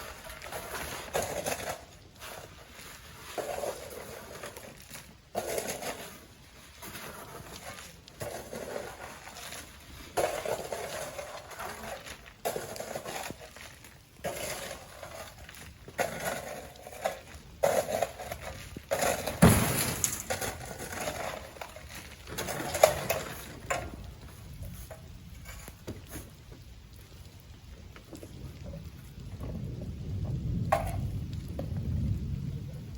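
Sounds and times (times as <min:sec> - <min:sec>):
shovel scraping grit: 0:00.0 - 0:23.8
sand landing in truck: 0:19.3 - 0:20.4
heavy thud: 0:19.4 - 0:20.3.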